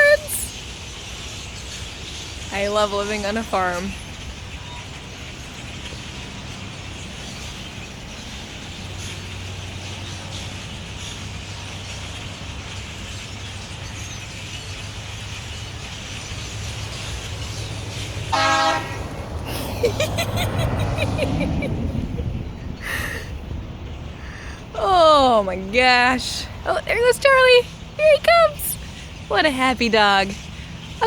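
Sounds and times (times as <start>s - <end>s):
flock of birds chattering: 0.0s - 31.0s
rush of noise: 16.0s - 25.0s
horn toot: 18.3s - 19.1s.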